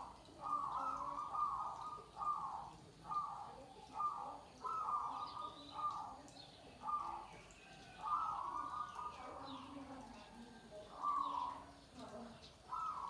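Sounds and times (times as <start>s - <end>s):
dove cooing: 0.0s - 6.2s, 6.8s - 7.3s, 8.0s - 9.4s, 12.7s - 13.0s.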